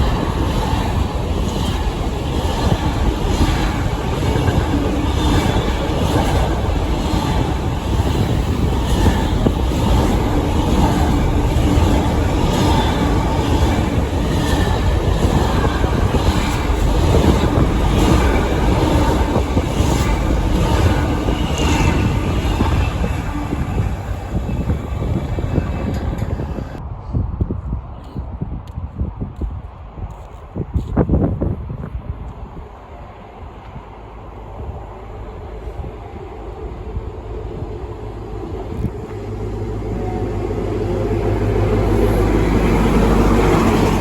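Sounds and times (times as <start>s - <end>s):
train rumbling past: 0.0s - 27.0s, 31.9s - 44.0s.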